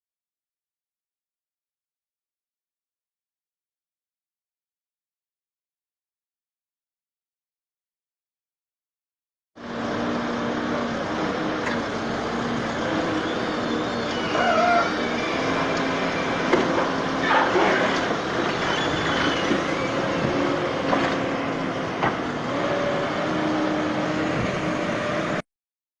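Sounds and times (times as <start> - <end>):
heavy vehicle engine running: 9.6 - 25.4
road noise: 9.6 - 25.4.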